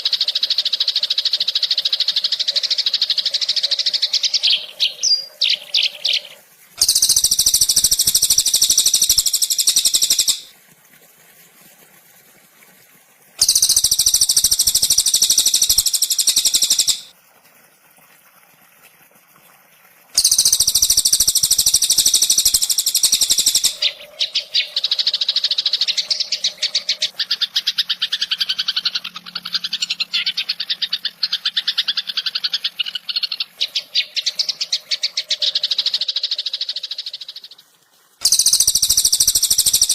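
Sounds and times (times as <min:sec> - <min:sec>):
fast chattering bird notes: 0:00.0 - 0:10.5, 0:13.4 - 0:17.1, 0:20.2 - 0:37.5, 0:38.2 - 0:39.9
high buzzing bird trills: 0:03.5 - 0:10.5, 0:13.4 - 0:17.1, 0:20.2 - 0:27.1, 0:38.2 - 0:39.9.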